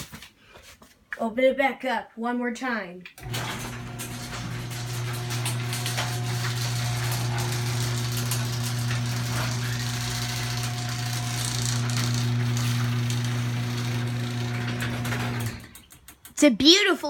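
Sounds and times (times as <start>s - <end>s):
garage door opener motor humming: 3.2s - 16.1s.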